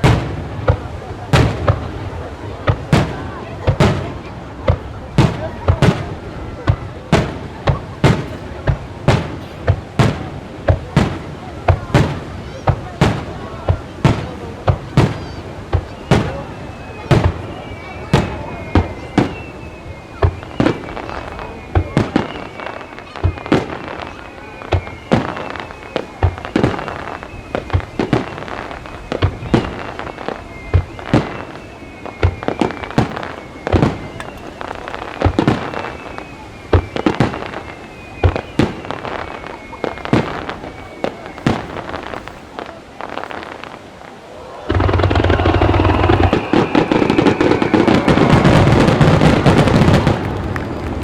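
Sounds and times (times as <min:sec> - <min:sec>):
firework shells booming: 0:00.0 - 0:16.4, 0:44.6 - 0:51.0
fireworks crackling: 0:00.0 - 0:51.0
firework shell booms: 0:44.7 - 0:50.1.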